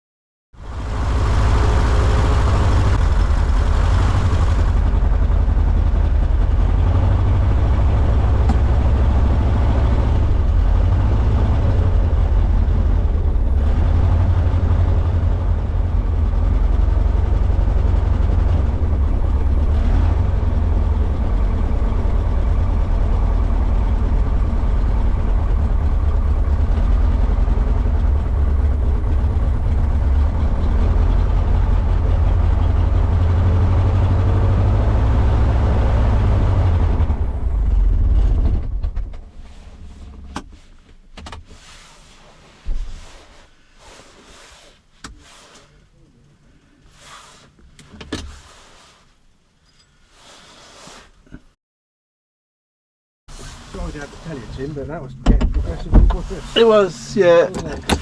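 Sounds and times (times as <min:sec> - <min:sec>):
aero engine running: 0:00.6 - 0:40.3.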